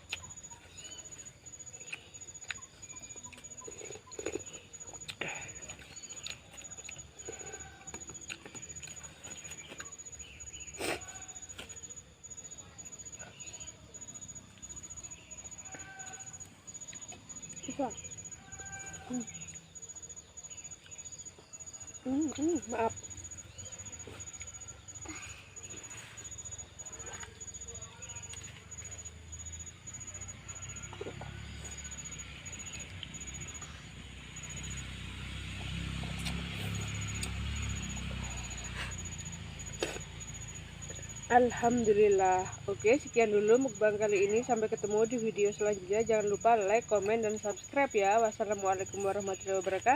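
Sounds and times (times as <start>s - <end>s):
chewing with wet mouth clicks: 0.0s - 1.0s, 1.6s - 10.3s, 16.4s - 18.2s
chewing and mouth clicks: 0.0s - 12.0s, 25.7s - 29.1s, 35.5s - 41.0s.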